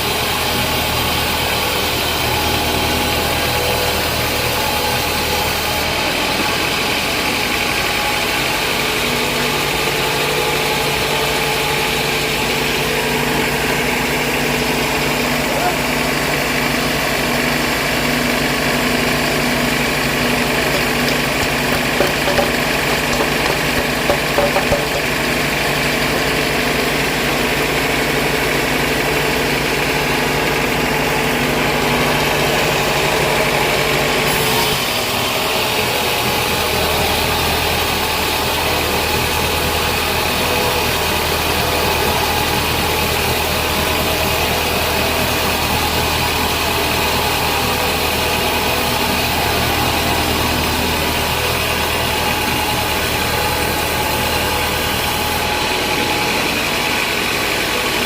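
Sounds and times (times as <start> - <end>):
band saw machinery drone: 0.0 - 58.0
light knocks: 20.7 - 25.2.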